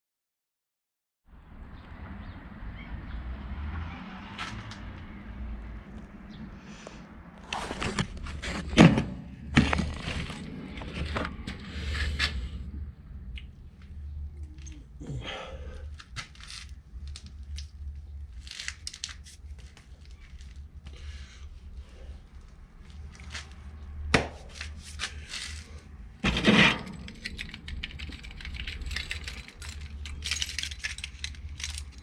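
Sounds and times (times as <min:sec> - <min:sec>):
rasping scrapes: 0:24.4 - 0:27.5.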